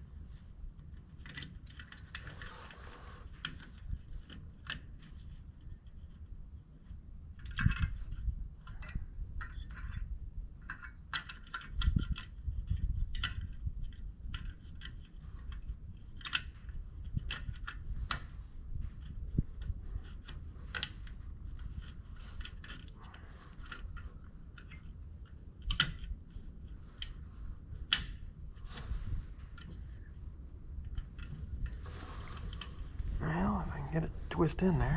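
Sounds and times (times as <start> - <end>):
small parts clicking and rattling: 0.8 - 6.3, 7.3 - 18.2, 18.9 - 27.2.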